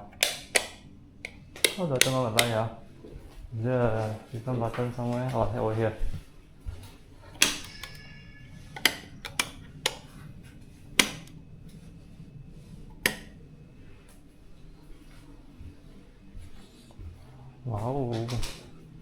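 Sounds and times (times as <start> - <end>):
light switches clicking: 0.1 - 2.7, 7.4 - 8.1, 8.8 - 10.1, 11.0 - 11.4, 12.9 - 13.4
high ringing tone: 6.6 - 16.4.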